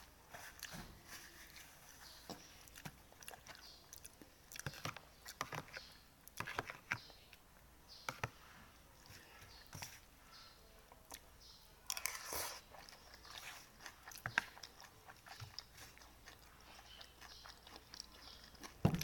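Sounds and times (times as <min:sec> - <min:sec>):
chewing and mouth noises: 0:02.3 - 0:07.4, 0:10.9 - 0:11.3, 0:11.9 - 0:19.0.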